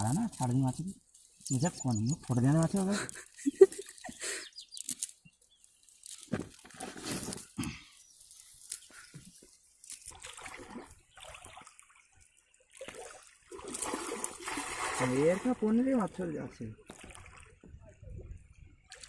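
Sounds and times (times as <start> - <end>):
water splashing and dripping: 9.8 - 17.8, 18.5 - 19.0.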